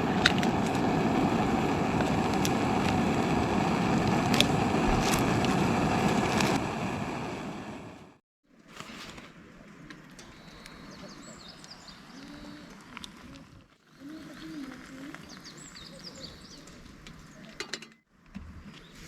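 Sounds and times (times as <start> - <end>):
light rain hiss: 0.0 - 8.1
birds chirping: 10.1 - 12.8, 13.9 - 17.6.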